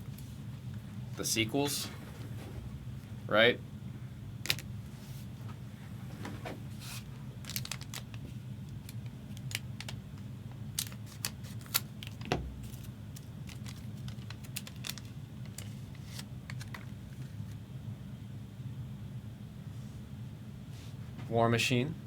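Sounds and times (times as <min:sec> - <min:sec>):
low hum: 0:00.0 - 0:07.5, 0:12.2 - 0:13.9
cards being flipped through: 0:10.8 - 0:17.3.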